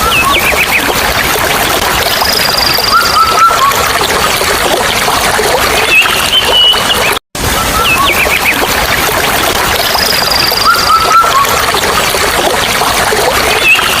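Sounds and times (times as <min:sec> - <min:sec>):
whistled bird notes: 0:02.2 - 0:03.8, 0:05.8 - 0:08.6, 0:10.0 - 0:11.6
bird chirps: 0:05.8 - 0:07.2.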